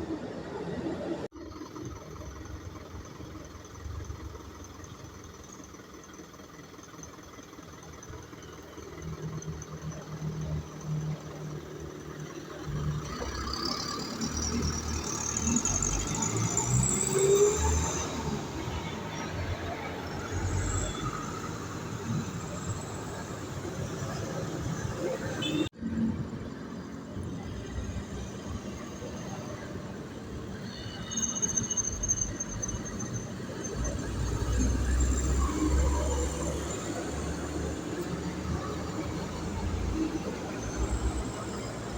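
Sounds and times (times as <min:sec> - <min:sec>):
heavy truck engine passing: 0:08.9 - 0:41.9.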